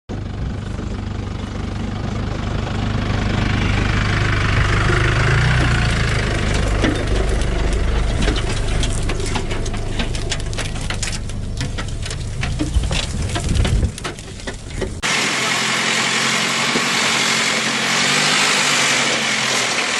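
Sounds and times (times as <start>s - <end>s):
vehicle engine humming: 0.1s - 19.9s
sharp clicks and crackles: 4.9s - 15.0s.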